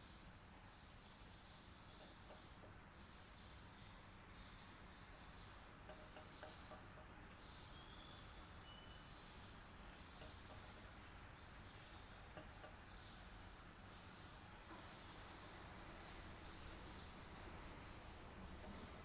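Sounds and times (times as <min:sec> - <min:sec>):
electric fan running: 0:13.2 - 0:19.0.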